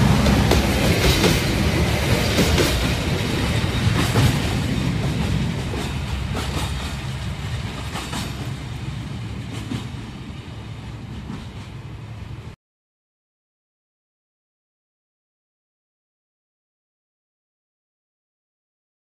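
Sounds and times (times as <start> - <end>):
wheels clicking over rail joints: 0.0 - 10.1
train wagons rumbling: 0.0 - 12.6.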